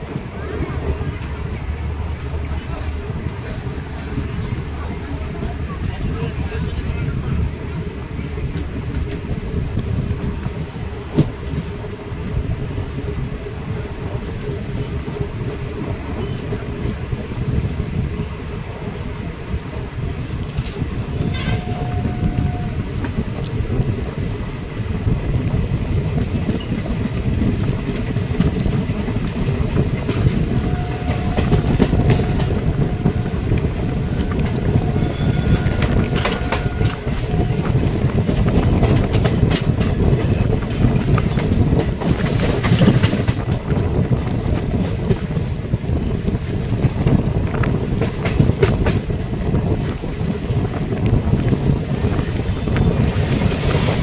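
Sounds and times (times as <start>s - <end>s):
train wheels and wind rumbling: 0.0s - 54.0s
train horn: 21.2s - 22.8s, 30.5s - 38.1s.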